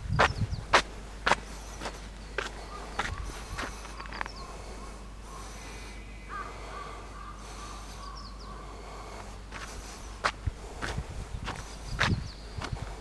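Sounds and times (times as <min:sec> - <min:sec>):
footsteps on paved path: 0:00.0 - 0:04.8, 0:09.0 - 0:13.0
birds calling faintly: 0:00.0 - 0:13.0.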